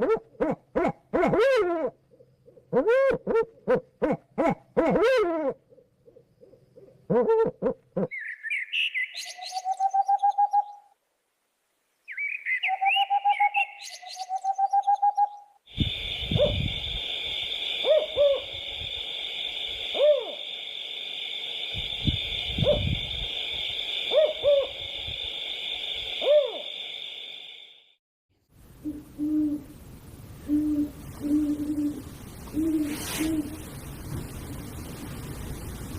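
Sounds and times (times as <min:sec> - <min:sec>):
bird hoots: 0:00.0 - 0:02.0, 0:02.7 - 0:10.9, 0:12.1 - 0:18.7, 0:19.4 - 0:20.5, 0:23.9 - 0:25.0, 0:26.0 - 0:26.9, 0:28.8 - 0:29.7, 0:30.4 - 0:33.6
bird whistle and trill: 0:08.1 - 0:10.8, 0:12.1 - 0:16.9, 0:24.1 - 0:24.8, 0:26.2 - 0:26.7
steady high hiss: 0:15.7 - 0:35.9.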